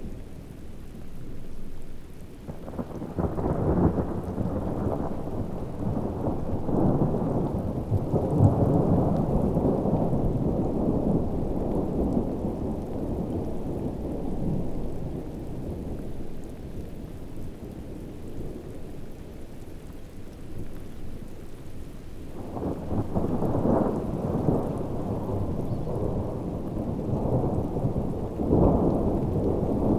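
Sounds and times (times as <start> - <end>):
heavy rain: 0.0 - 29.9
rolling thunder: 22.4 - 29.9.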